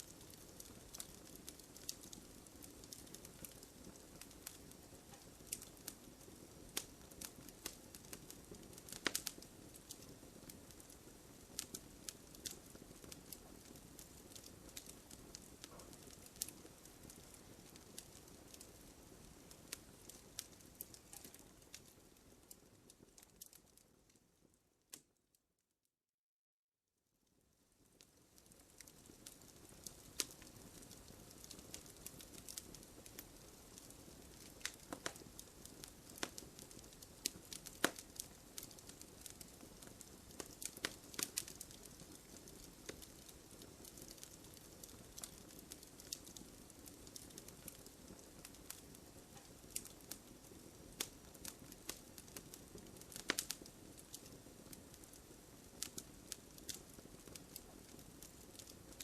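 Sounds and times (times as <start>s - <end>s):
campfire crackling: 0.0s - 25.0s, 27.8s - 59.0s.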